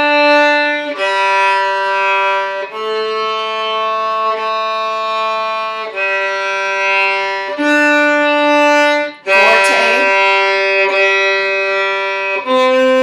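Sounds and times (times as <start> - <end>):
violin bowing long notes: 0.0 - 13.0.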